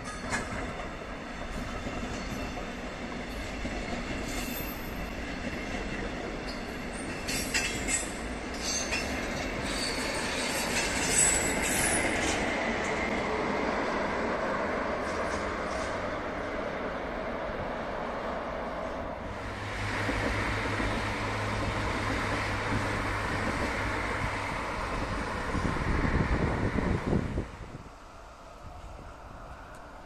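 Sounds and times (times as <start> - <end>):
train wheels squealing: 0.0 - 12.7
rail joints clacking: 0.0 - 17.0, 18.8 - 27.4
train rolling noise: 0.0 - 30.0.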